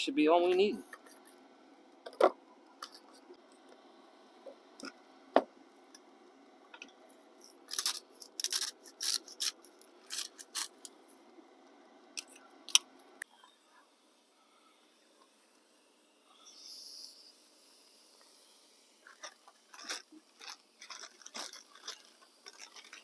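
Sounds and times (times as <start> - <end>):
seasoning shaker rasping: 7.1 - 10.9, 16.4 - 23.0.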